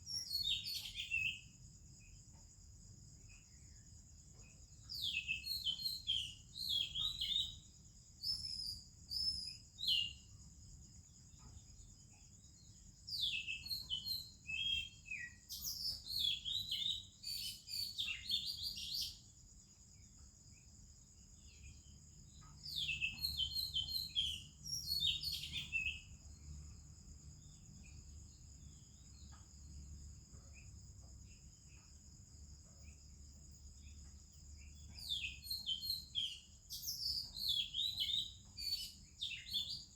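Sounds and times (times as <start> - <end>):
high insect drone: 0.0 - 39.9
bird singing whistled phrases: 5.0 - 7.6, 13.2 - 19.2, 22.7 - 26.1, 35.0 - 39.9.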